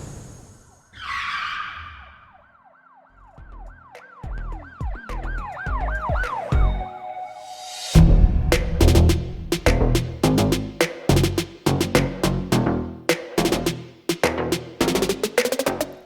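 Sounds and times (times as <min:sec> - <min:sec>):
electronic siren-like warble: 0:00.8 - 0:08.0
whoosh: 0:07.4 - 0:10.3
heavy bass hits: 0:08.0 - 0:12.6.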